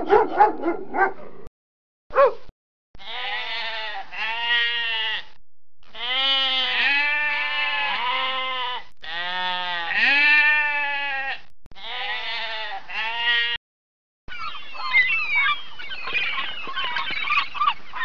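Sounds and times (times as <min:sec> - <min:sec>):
sheep bleating: 0:03.0 - 0:13.6.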